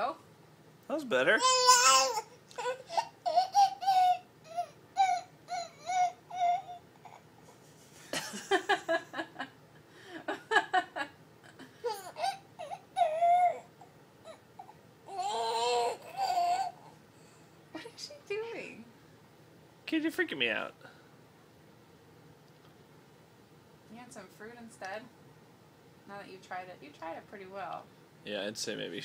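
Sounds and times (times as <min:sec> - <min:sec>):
baby whimpering cries: 0:01.4 - 0:07.4, 0:11.8 - 0:17.0.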